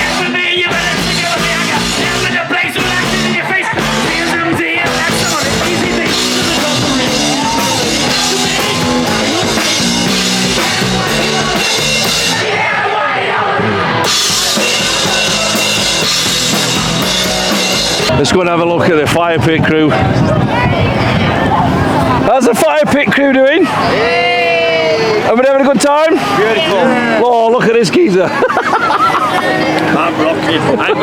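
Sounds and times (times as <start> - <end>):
loud rock music with drums: 0.0 - 22.4.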